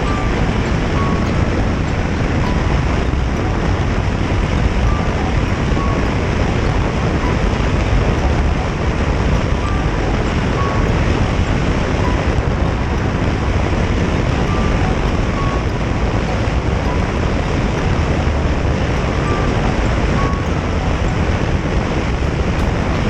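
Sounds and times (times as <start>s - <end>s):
motorcycle engine and road noise: 0.0s - 23.0s
wind rushing over microphone: 0.0s - 23.0s.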